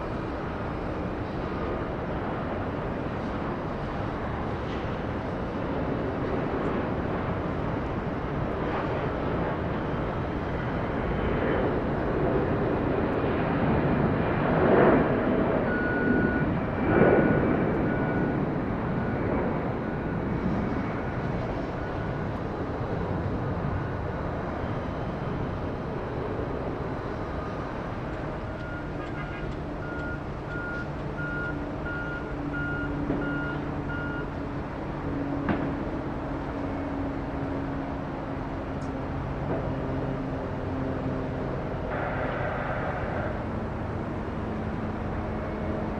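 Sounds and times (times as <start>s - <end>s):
jet engines rumbling: 0.0s - 45.9s
vehicle reversing alarm beeps: 15.7s - 16.5s, 27.4s - 34.4s.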